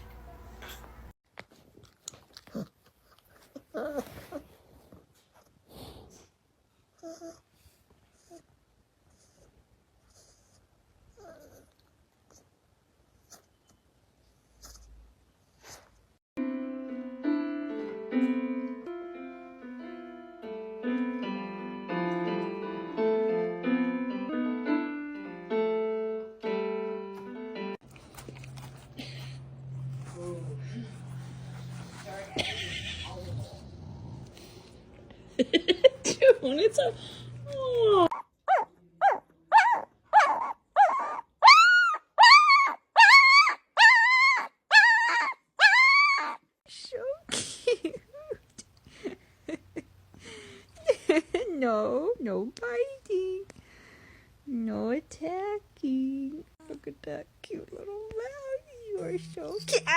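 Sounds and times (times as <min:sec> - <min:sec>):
solo piano melody: 0:16.4 - 0:27.8
dog yelping: 0:38.1 - 0:46.4.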